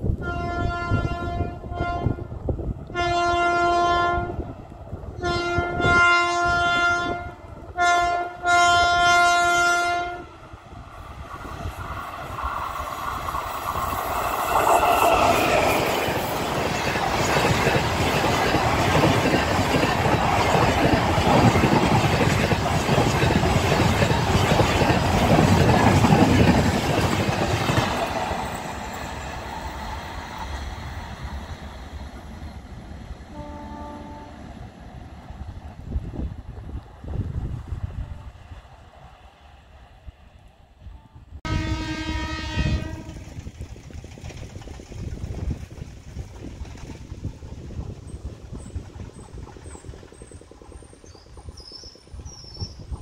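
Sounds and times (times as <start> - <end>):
train horn blasts: 0.2 - 4.5, 5.2 - 10.4, 33.3 - 34.4, 40.8 - 43.3
rush of wheels on rail: 8.8 - 40.8, 41.5 - 53.0.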